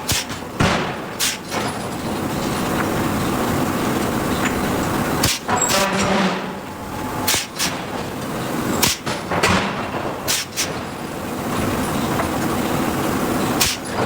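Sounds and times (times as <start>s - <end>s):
forging hammer heavy blows: 0.0s - 2.8s, 5.2s - 11.0s, 13.6s - 14.0s
steady machinery noise: 0.0s - 14.0s.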